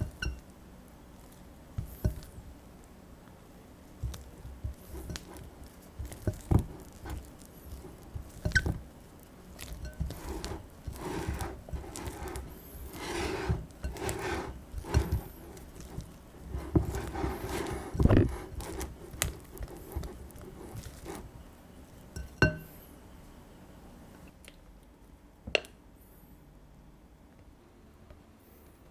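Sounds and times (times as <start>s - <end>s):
batter stirred and scraped in bowl: 0.0s - 0.5s, 1.1s - 2.9s, 3.8s - 23.3s.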